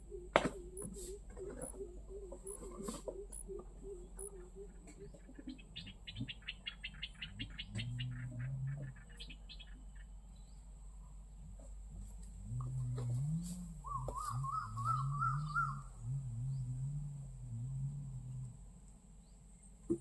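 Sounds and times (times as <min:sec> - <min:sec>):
small bird chirping: 0:00.0 - 0:11.2, 0:13.8 - 0:16.9
low steady bird call: 0:00.0 - 0:20.0.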